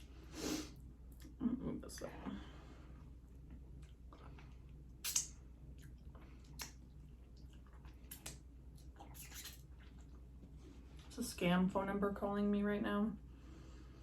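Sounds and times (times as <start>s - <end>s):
wet chewing: 3.0s - 11.1s
mouth smacks and clicks: 5.0s - 6.8s.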